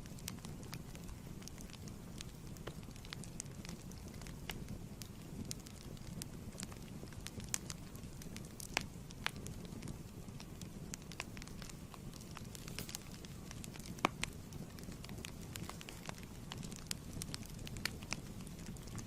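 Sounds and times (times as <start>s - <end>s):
low rumble of fire: 0.0s - 19.0s
sharp pops and snaps: 0.0s - 19.0s
wood fire crackling: 0.0s - 19.0s.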